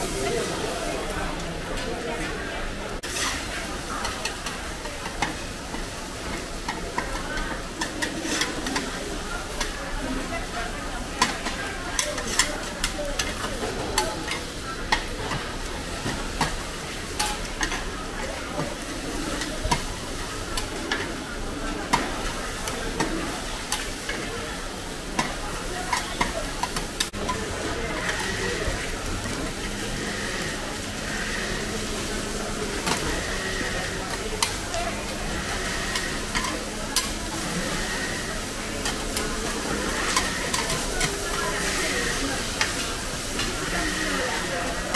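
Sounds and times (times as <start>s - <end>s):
omelette sizzling in oil: 3.0s - 44.9s
metal spatulas scraping pan: 7.8s - 8.9s, 11.2s - 15.4s, 38.8s - 44.0s.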